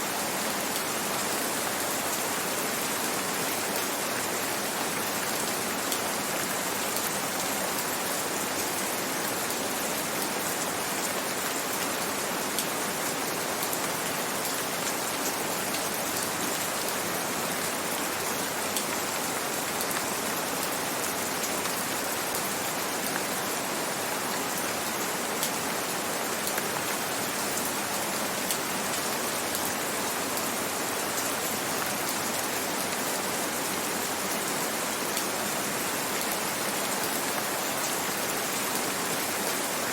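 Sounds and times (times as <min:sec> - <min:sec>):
gentle rain: 0:00.0 - 0:39.9.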